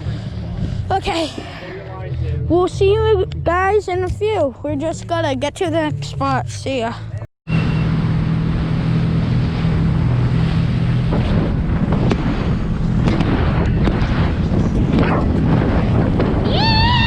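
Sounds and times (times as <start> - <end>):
wind buffeting microphone: 0.0 - 5.0, 7.7 - 17.0
outboard motor running: 7.5 - 15.7.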